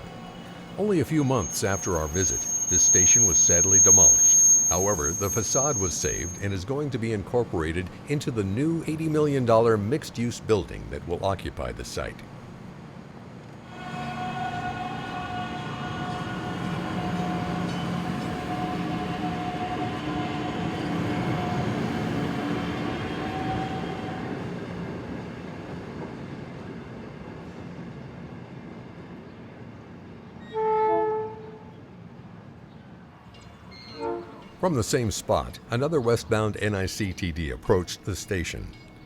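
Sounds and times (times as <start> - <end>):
electric train running past: 0.0 - 30.6
train horn blast: 13.6 - 24.2, 30.4 - 31.8, 33.7 - 34.6.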